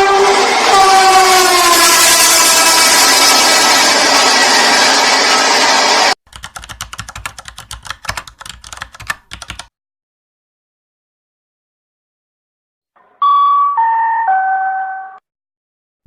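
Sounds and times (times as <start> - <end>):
train horn: 0.0 - 2.8
train running: 0.0 - 6.2
keyboard typing clicks: 6.3 - 9.7.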